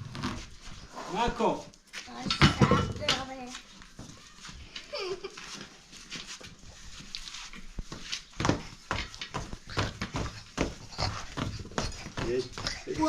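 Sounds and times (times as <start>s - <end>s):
rustling: 0.0s - 2.3s, 3.0s - 13.0s.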